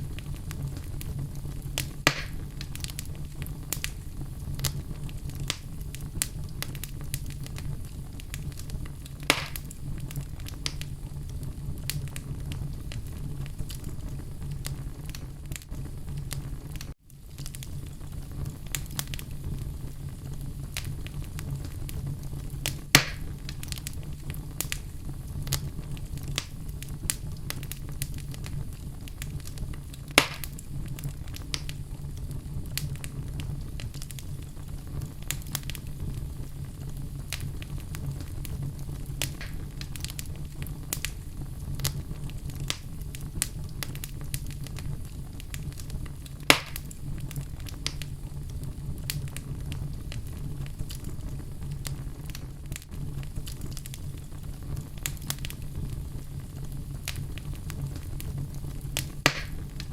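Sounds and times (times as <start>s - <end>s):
fire crackling: 0.0s - 59.9s
fire rumbling: 0.0s - 59.9s
wood popping and snapping: 1.8s - 3.0s, 9.2s - 9.7s, 23.0s - 23.2s, 30.2s - 30.6s, 46.5s - 46.9s, 59.0s - 59.8s.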